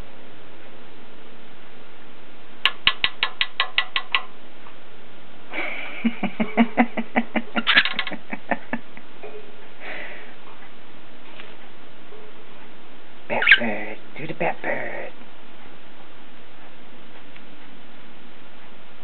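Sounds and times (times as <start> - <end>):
cockatiel clicking: 2.6 - 4.4, 7.6 - 8.3.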